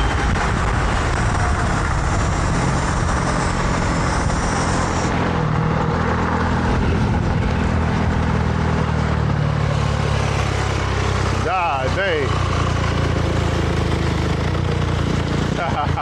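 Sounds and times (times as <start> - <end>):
wind rushing on microphone: 0.0 - 8.8
dirt bike engine drone: 0.0 - 16.0.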